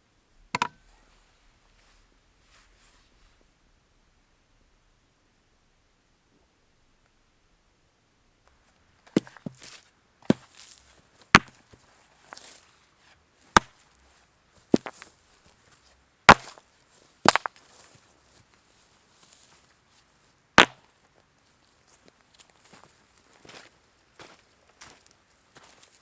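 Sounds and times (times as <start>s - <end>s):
wood chopping strikes: 0.6s - 0.8s, 10.3s - 10.6s, 11.3s - 11.6s, 13.6s - 13.8s, 14.8s - 15.0s, 16.3s - 16.6s, 17.3s - 17.5s, 20.6s - 20.8s.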